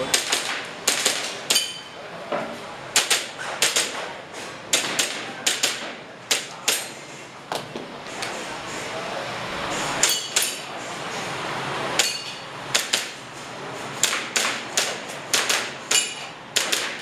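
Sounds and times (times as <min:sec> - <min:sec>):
airsoft pistol firing sharp cracks: 0:00.1 - 0:01.7, 0:03.0 - 0:04.0, 0:12.7 - 0:13.2, 0:14.0 - 0:17.0.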